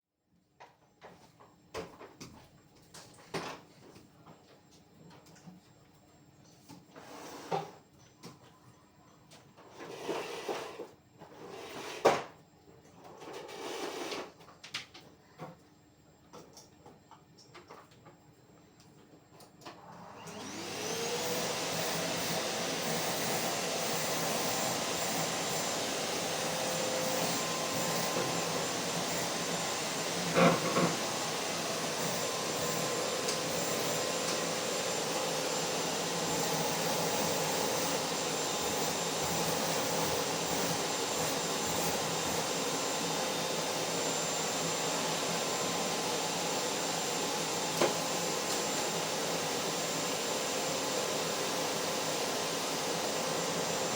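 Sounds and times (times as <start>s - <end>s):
vacuum cleaner motor running: 9.7s - 12.3s, 19.7s - 53.9s.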